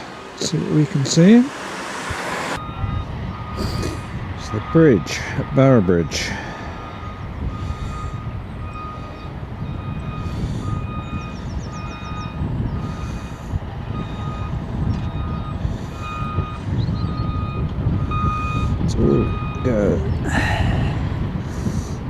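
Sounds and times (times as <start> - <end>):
reversing alarm beeping: 0.0 - 21.8
low vehicle rumble: 0.0 - 22.0.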